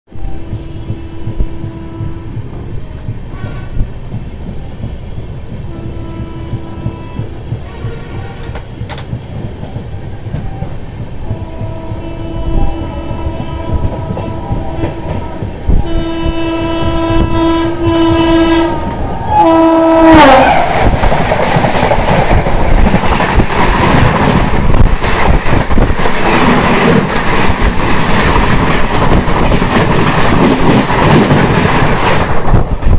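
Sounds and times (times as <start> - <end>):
locomotive horn blasts: 0.2 - 2.6, 5.6 - 8.5, 11.3 - 20.6
train coaches rushing past: 0.3 - 32.9.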